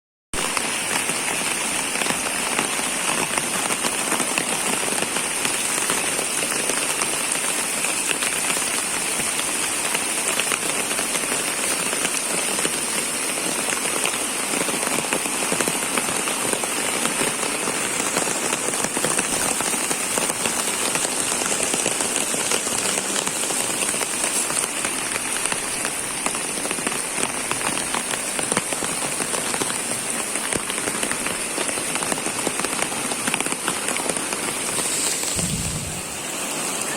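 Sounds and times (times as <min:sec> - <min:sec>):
falling water hissing: 0:17.7 - 0:36.9.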